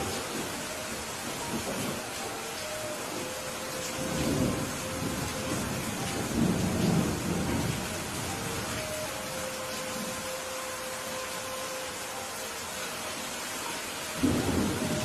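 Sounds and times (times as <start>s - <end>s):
rain hissing: 0.0s - 15.0s
thunder rumbling: 3.1s - 8.7s, 14.2s - 15.0s.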